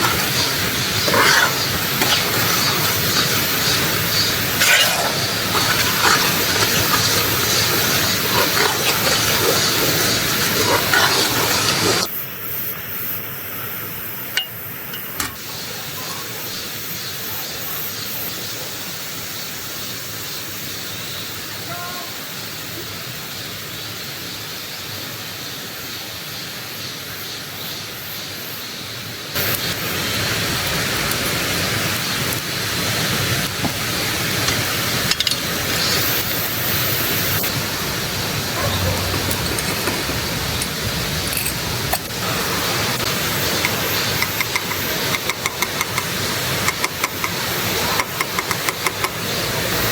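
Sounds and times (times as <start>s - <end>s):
stream water rushing over rocks: 0.0s - 12.1s, 29.4s - 49.9s.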